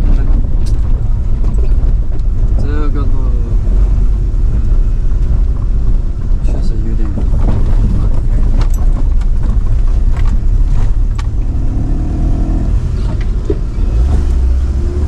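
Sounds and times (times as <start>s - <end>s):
knocks and rattles: 0.0s - 11.9s
engine and road rumble: 0.0s - 15.0s.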